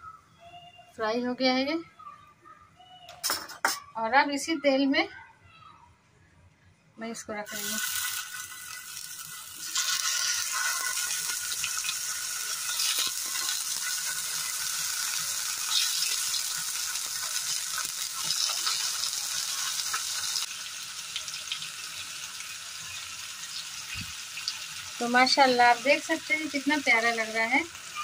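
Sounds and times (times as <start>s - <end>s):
tomatoes sizzling in oil: 7.2s - 28.0s.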